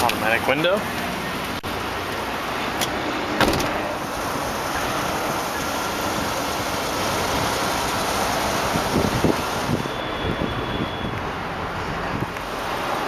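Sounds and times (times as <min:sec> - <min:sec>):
thump: 0:03.4 - 0:03.8.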